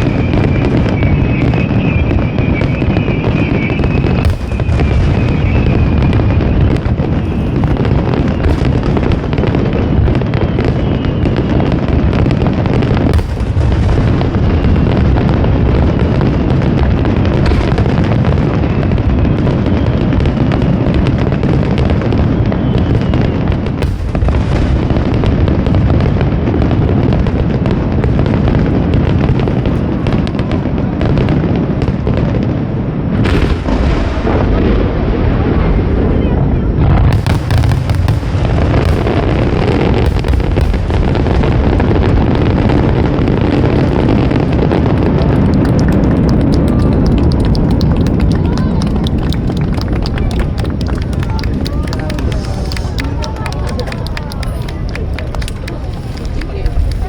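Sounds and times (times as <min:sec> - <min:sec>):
high wavering firework whistle: 0:00.0 - 0:12.4, 0:21.8 - 0:25.5
fireworks booming barrage: 0:00.0 - 0:57.0.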